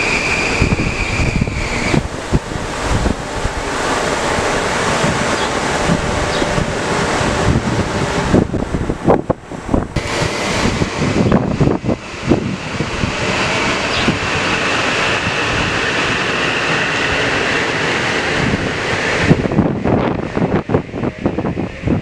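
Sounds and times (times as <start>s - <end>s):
faint whine: 10.0s - 13.9s
train passing: 10.0s - 19.0s.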